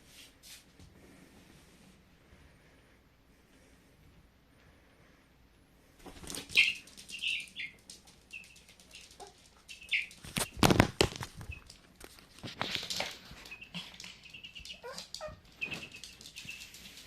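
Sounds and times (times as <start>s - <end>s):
wing flapping and scuffling: 6.0s - 17.0s
chick peeping: 6.3s - 10.8s, 13.4s - 16.9s.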